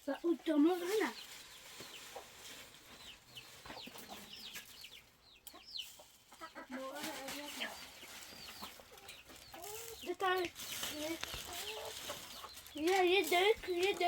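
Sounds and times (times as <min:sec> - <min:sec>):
chickens clucking: 0:00.1 - 0:14.0
high peeping chirps: 0:02.9 - 0:06.6, 0:07.4 - 0:13.5.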